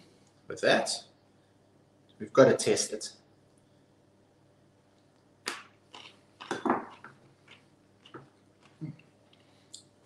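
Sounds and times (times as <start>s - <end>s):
crunchy carrot chewing: 5.5s - 9.6s.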